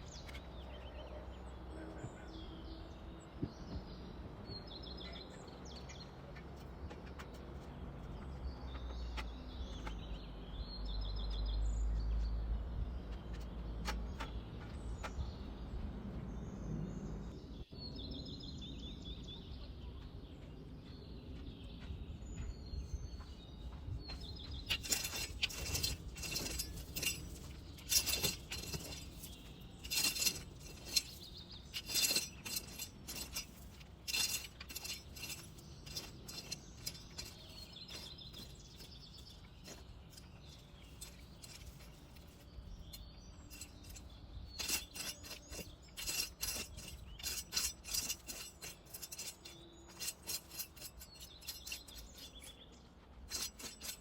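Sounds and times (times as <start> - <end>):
sharp clicks and clinks: 24.5 - 52.6, 53.3 - 54.0.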